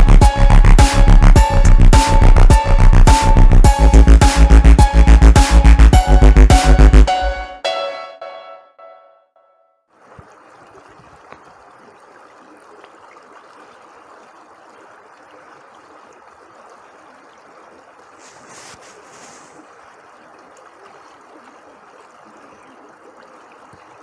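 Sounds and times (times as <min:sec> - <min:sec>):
stream water rushing: 0:10.0 - 0:19.6
brief hiss: 0:18.2 - 0:19.6.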